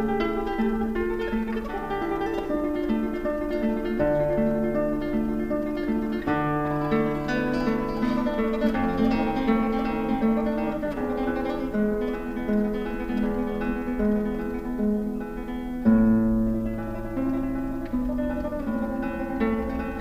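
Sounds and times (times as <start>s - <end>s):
instrumental music with plucked notes: 0.0s - 20.0s.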